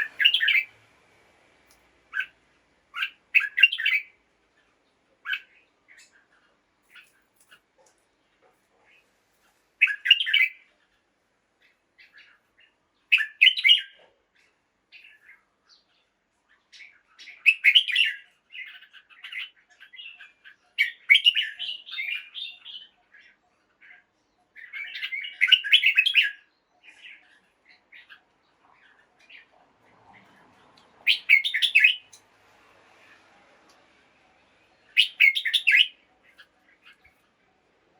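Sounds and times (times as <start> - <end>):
bulbul singing: 0.0 - 0.7, 31.0 - 32.2, 34.8 - 37.2.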